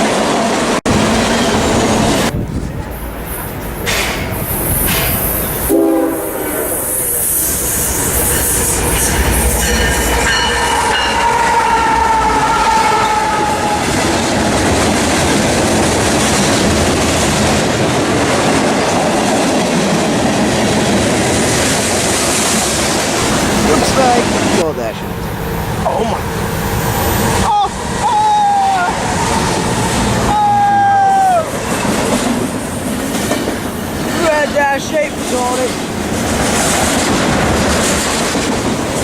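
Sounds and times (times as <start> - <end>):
train rumble and rail noise: 0.0 - 39.0
locomotive horn blasts: 4.9 - 7.0, 10.7 - 14.0.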